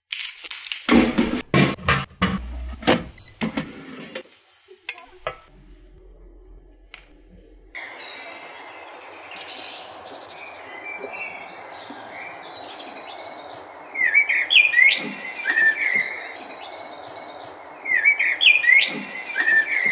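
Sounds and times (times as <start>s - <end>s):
outdoor background hiss: 1.5s - 6.0s, 7.8s - 19.9s
songbirds chirping and singing: 7.0s - 19.9s
whistled bird notes: 7.1s - 19.9s.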